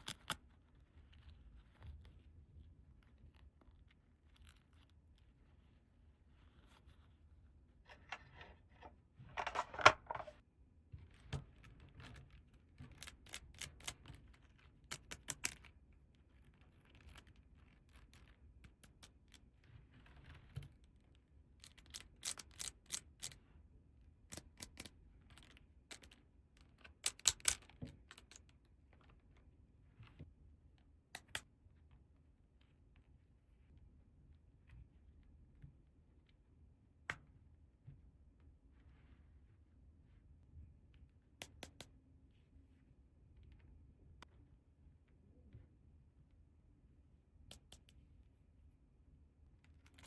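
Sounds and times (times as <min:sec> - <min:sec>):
plastic toy pieces clicking: 0:08.1 - 0:10.3, 0:27.0 - 0:27.6.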